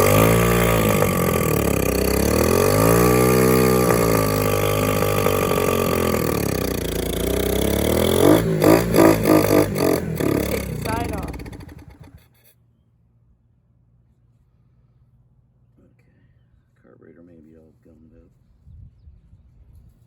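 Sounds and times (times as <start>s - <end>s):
dirt bike engine revving: 0.0s - 12.4s.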